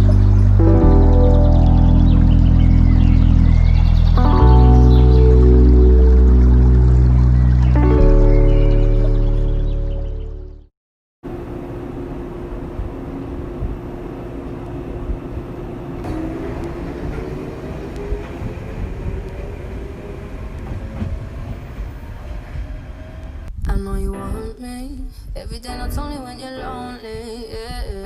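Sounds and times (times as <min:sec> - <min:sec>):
vehicle engine rumble: 0:00.0 - 0:10.7, 0:11.3 - 0:23.6.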